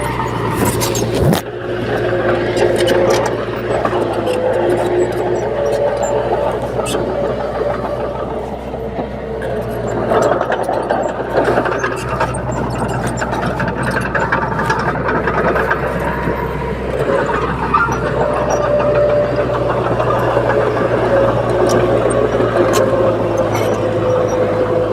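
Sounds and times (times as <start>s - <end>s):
bulldozer diesel engine running: 0.0s - 24.9s.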